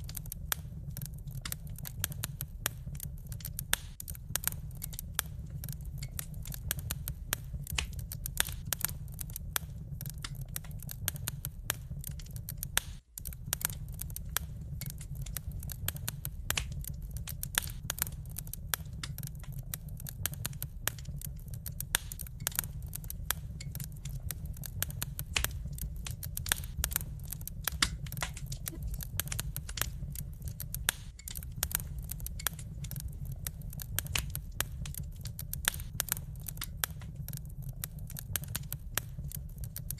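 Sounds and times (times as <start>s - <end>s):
low rumble: 0.0s - 39.9s
wood fire crackling: 0.0s - 39.9s.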